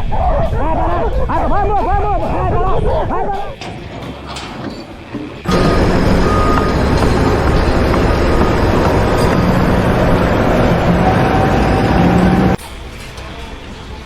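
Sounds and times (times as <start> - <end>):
heavy machine engine running: 3.7 - 12.6.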